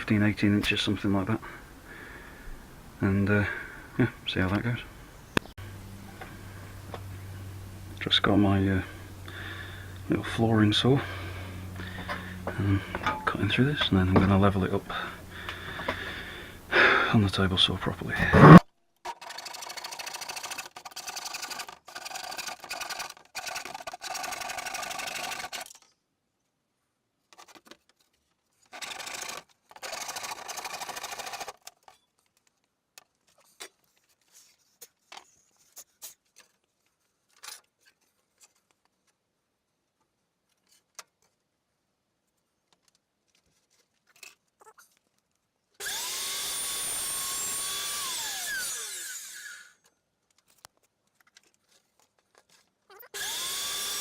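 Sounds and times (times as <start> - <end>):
power tool whine: 5.6 - 16.7, 18.2 - 18.6, 45.8 - 49.9, 53.1 - 54.0
power saw cutting board: 5.6 - 17.0, 18.1 - 18.6, 45.8 - 49.8, 53.2 - 54.0.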